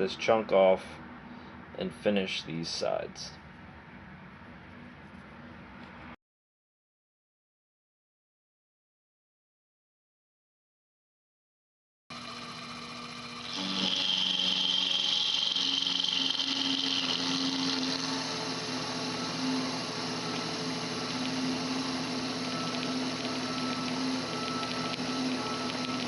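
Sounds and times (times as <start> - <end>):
milling machine motor humming: 12.1 - 26.0.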